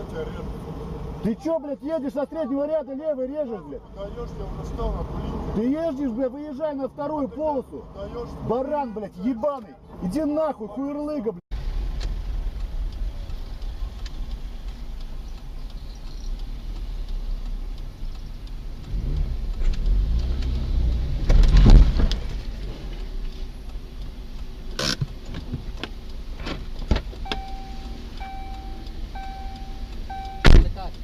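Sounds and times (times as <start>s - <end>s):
car engine: 0.0s - 10.5s, 11.5s - 31.0s
road rumble: 0.0s - 31.0s
sharp clicks: 11.9s - 31.0s
repeating electronic beep: 27.2s - 30.6s.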